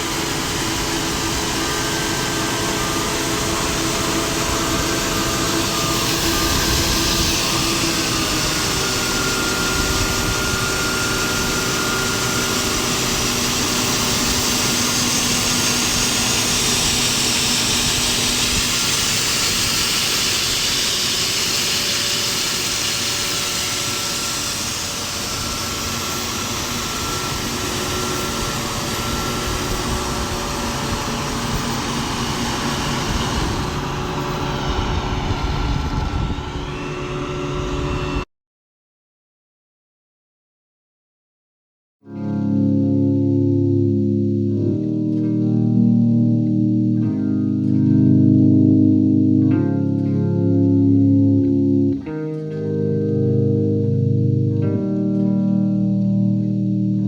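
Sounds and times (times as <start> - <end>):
machine motor whining: 0.0 - 38.2.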